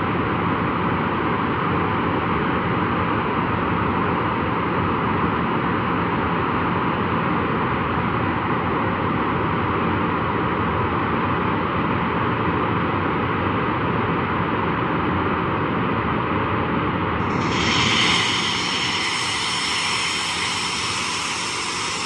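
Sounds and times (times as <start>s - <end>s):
jet engine running: 17.2s - 22.0s.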